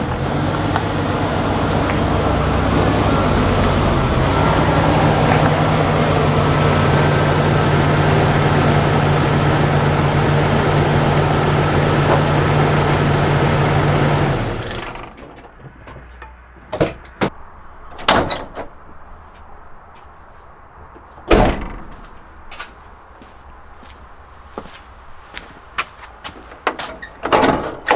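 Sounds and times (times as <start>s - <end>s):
car engine running: 0.0s - 15.2s, 17.3s - 27.3s
sharp clunks: 16.2s - 27.9s.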